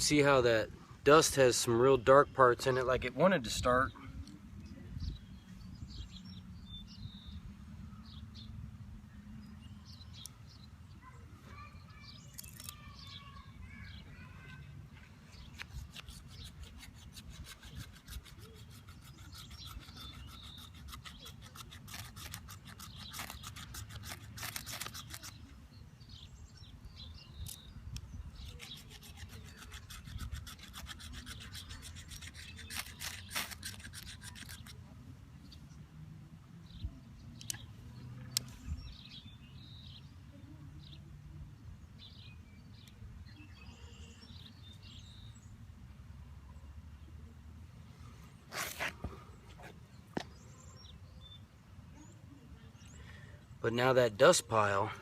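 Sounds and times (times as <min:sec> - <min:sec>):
wooden spindle rubbing and scraping: 0:15.4 - 0:25.4, 0:28.4 - 0:34.8.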